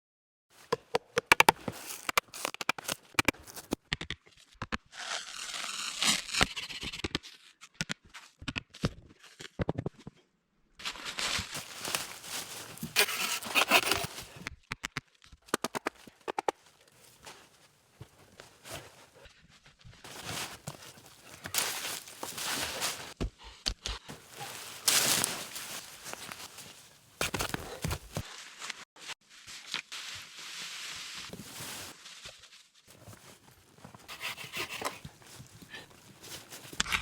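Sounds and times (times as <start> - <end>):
bark tearing and rasping: 4.9 - 7.4, 11.6 - 14.4, 20.1 - 23.2, 27.2 - 28.2, 34.1 - 37.0.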